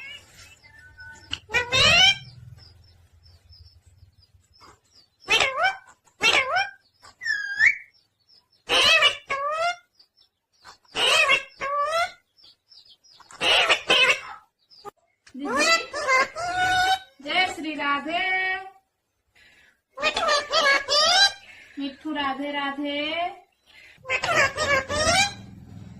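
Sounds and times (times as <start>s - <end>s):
parrot squawking: 0.0s - 2.4s, 5.2s - 7.9s, 8.7s - 9.9s, 10.9s - 12.3s, 13.3s - 14.5s, 20.0s - 21.4s, 24.0s - 25.4s.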